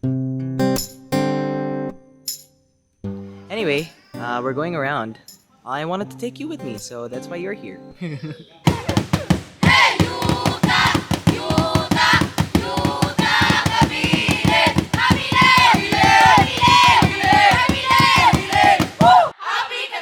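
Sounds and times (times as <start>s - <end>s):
fast drumbeat: 8.7s - 19.3s
voices chanting and calling out: 9.6s - 20.0s.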